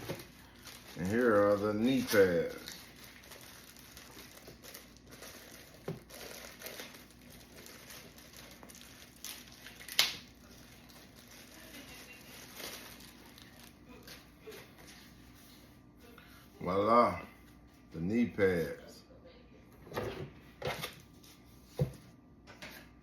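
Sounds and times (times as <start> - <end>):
loud packaging crackle: 0.0 - 14.6
packaging crinkling: 0.0 - 15.1.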